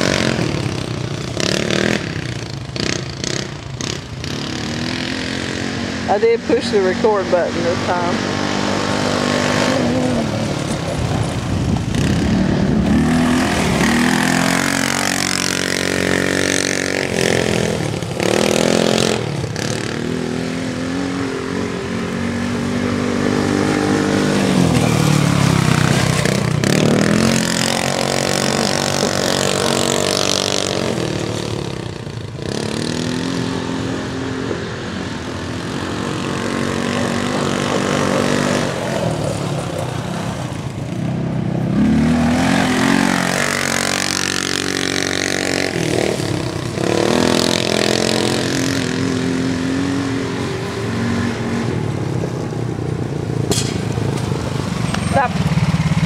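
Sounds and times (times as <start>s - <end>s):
small engine revving: 0.0s - 34.6s.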